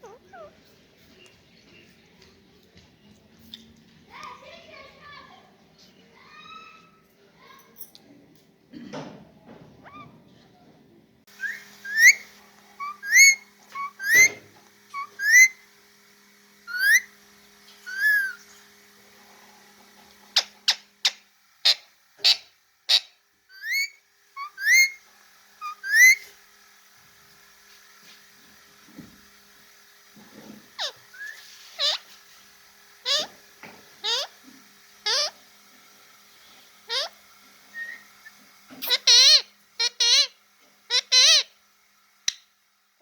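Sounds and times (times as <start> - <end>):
parrot whistling: 0.0 - 0.5, 11.3 - 15.6, 16.7 - 17.2, 17.8 - 18.4, 21.7 - 25.0, 25.6 - 26.3, 30.8 - 32.1, 33.0 - 33.4, 34.0 - 34.3, 35.0 - 35.4, 36.9 - 41.5.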